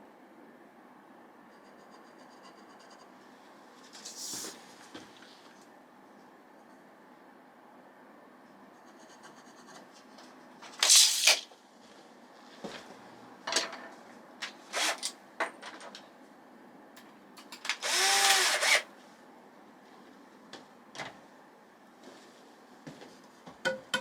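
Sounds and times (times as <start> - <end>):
power drill bursts: 14.8 - 15.1, 17.7 - 18.9.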